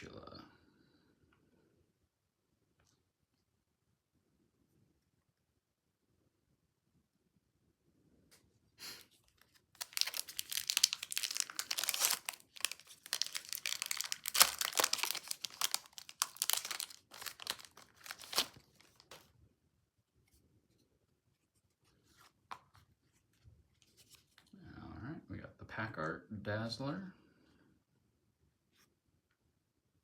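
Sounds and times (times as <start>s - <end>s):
wrapper torn open and crinkled: 9.2s - 19.3s.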